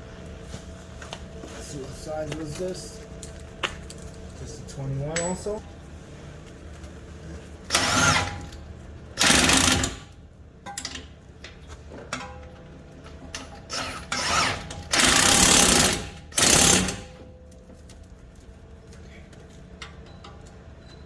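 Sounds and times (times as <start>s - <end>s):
cordless impact wrench bursts: 7.7s - 8.5s, 9.2s - 10.1s, 13.7s - 17.2s.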